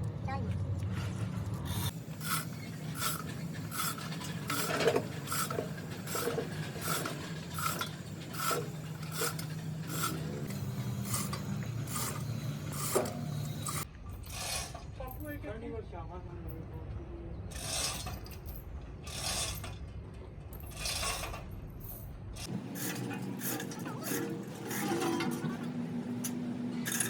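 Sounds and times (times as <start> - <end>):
hand file rasping: 1.8 - 13.9, 22.5 - 25.4.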